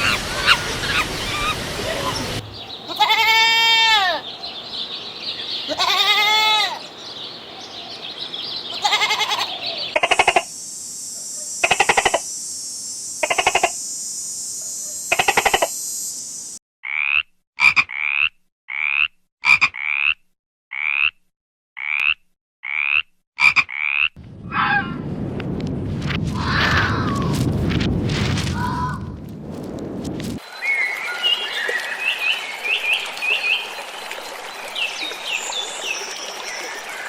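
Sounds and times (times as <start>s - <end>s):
bleat: 2.9s - 4.2s, 5.7s - 6.8s, 8.7s - 9.6s
frogs croaking: 6.8s - 19.1s
short rising chirp-like calls: 7.5s - 16.5s
steady high hiss: 10.0s - 16.6s.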